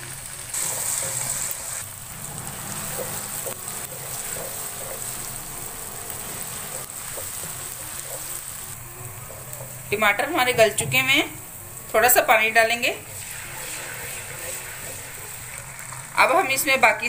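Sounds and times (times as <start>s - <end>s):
vegetables sizzling in oil: 0.0s - 17.0s
wooden spatula stirring: 2.4s - 10.0s, 13.1s - 15.9s.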